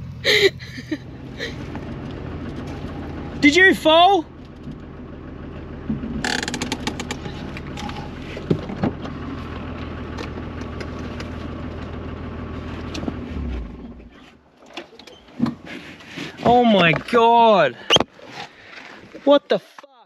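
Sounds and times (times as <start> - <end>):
engine idling: 0.0 - 19.5.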